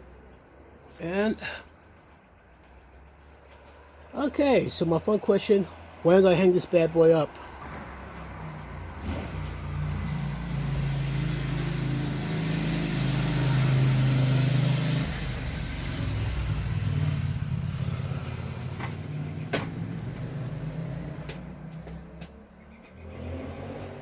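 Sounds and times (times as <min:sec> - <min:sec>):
motor vehicle engine running: 0:07.5 - 0:24.0.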